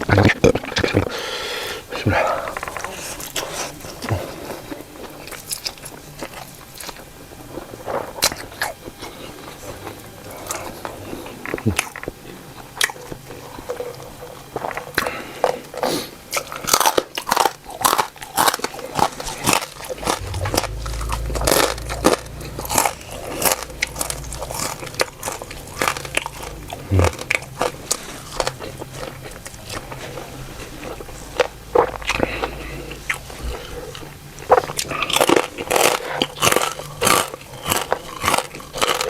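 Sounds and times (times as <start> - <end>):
person chewing crunchy food: 0.0 - 39.0
low hum: 19.2 - 39.0.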